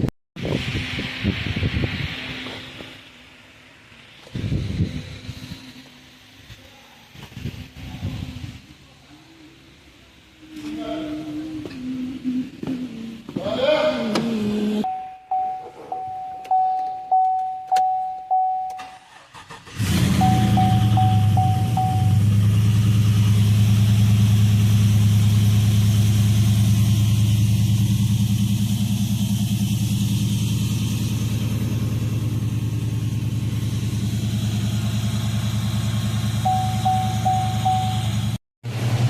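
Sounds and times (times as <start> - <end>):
short beeps: 14.8 - 19.0, 20.1 - 22.2, 36.4 - 38.2
engine idling: 18.3 - 39.0.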